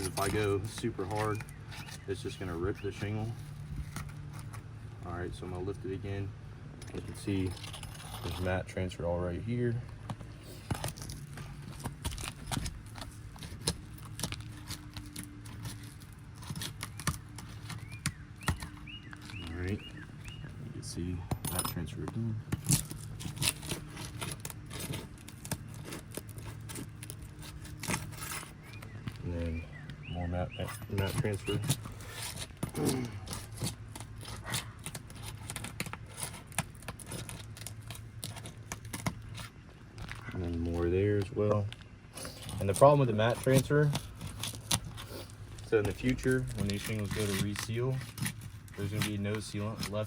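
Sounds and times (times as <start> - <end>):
shingles tearing apart: 10.4 - 19.4, 22.5 - 28.9, 31.1 - 40.3, 41.7 - 50.0.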